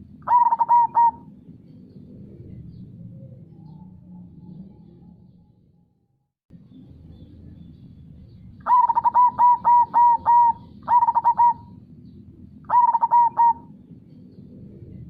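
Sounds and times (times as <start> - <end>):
dove cooing: 0.0 - 3.8, 8.6 - 11.8, 12.7 - 13.9.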